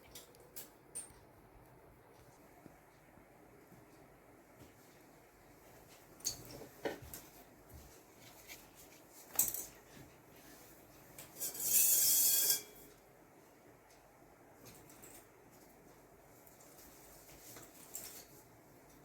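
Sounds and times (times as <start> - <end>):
light rubbing and scraping: 8.2 - 12.8.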